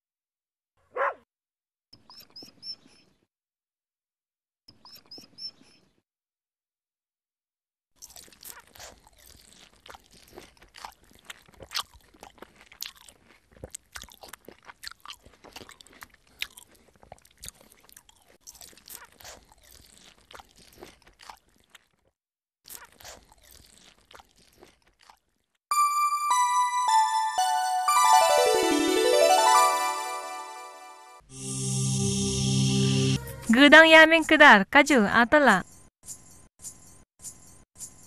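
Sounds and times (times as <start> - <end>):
animal chewing with crunches: 8.0 - 25.5.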